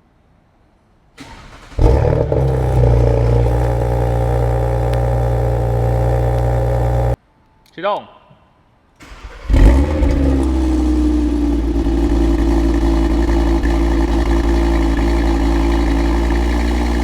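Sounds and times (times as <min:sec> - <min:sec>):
car starter cranking: 0:01.2 - 0:07.2, 0:09.0 - 0:17.0
car engine revving and idling: 0:01.3 - 0:07.2, 0:09.3 - 0:17.0.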